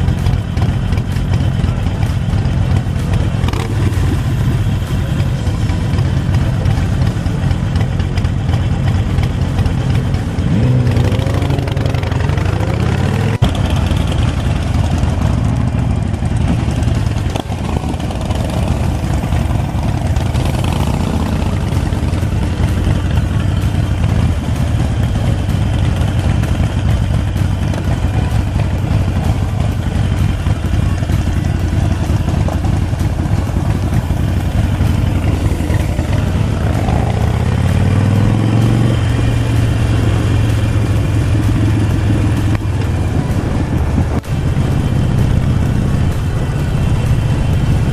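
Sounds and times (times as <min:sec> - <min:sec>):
motorcycle engine revving: 0:00.0 - 0:47.9
wind noise on microphone: 0:39.8 - 0:47.9.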